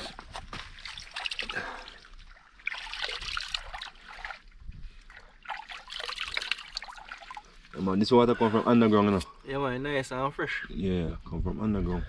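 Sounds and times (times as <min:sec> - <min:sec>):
water trickling and splashing: 0:00.0 - 0:08.8.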